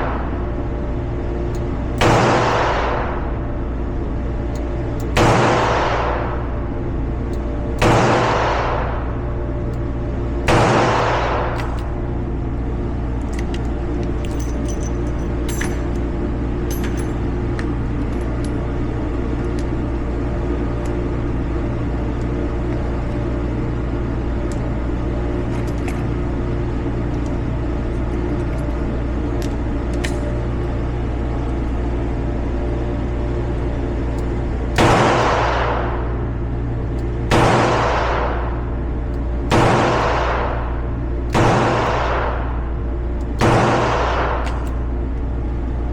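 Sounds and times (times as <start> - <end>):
low background hum and rumble: 0.0 - 45.9.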